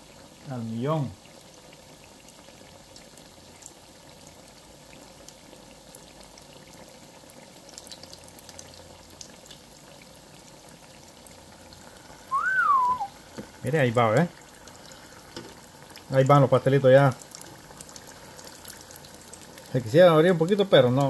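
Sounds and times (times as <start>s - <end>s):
food deep-frying in hot oil: 0.0s - 21.0s
oil popping and crackling: 1.2s - 21.0s.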